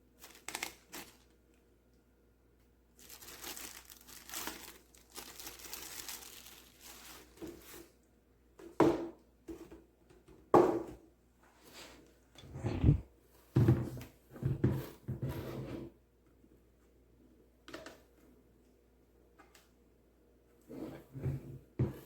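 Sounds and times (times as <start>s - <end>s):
packaging rustling and tearing: 0.2s - 1.3s, 3.0s - 7.8s.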